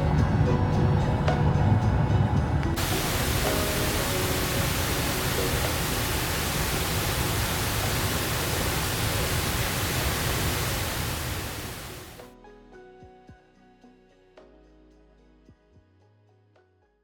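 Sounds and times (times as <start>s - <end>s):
rushing water: 2.8s - 12.2s.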